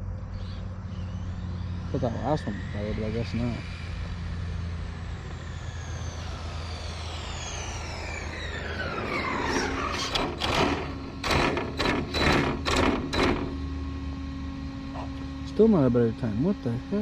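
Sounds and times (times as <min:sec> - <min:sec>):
electric motor whine: 0:00.0 - 0:17.0
sharp irregular knocks and rattles: 0:10.0 - 0:13.6.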